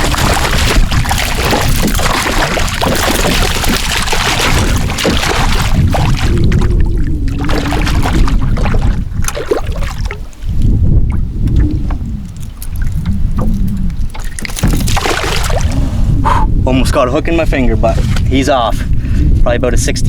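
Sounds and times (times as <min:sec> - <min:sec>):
water splashing around canoe: 0:00.0 - 0:16.4, 0:17.3 - 0:19.2
wind buffeting microphone: 0:00.0 - 0:20.0
knocks against canoe hull: 0:14.4 - 0:15.2.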